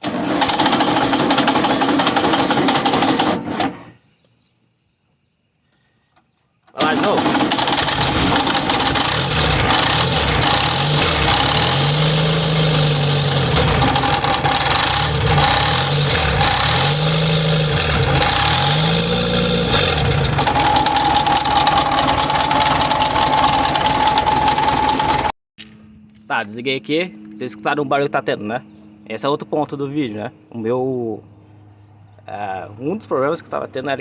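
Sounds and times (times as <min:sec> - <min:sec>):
car engine revving: 0:06.8 - 0:25.3
loud metallic rattling: 0:06.8 - 0:25.3.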